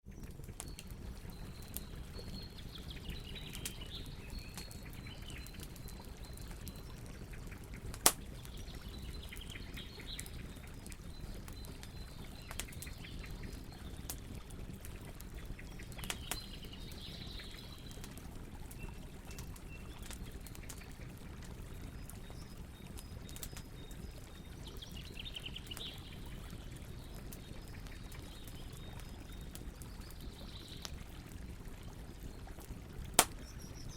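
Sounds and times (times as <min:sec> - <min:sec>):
campfire crackling: 0:00.1 - 0:33.9
loud pop of fire: 0:33.2 - 0:33.5.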